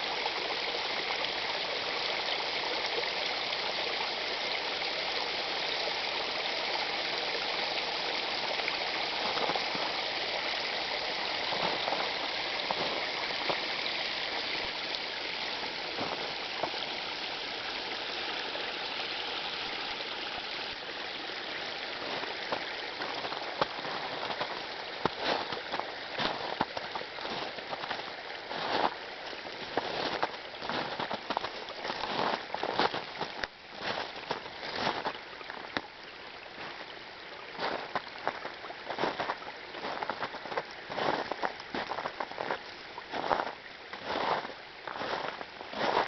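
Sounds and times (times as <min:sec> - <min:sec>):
water pouring over waterfall: 0:00.0 - 0:46.0.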